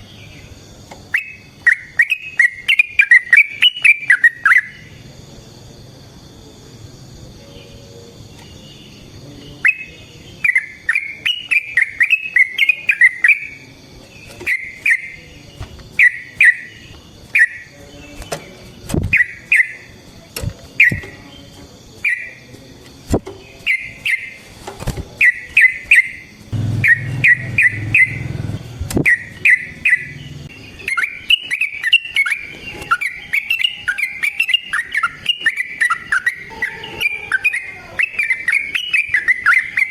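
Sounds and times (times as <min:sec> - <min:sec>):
bird chattering song: 0:00.0 - 0:05.1, 0:08.3 - 0:20.0, 0:20.7 - 0:22.5, 0:23.4 - 0:24.5, 0:25.2 - 0:39.9.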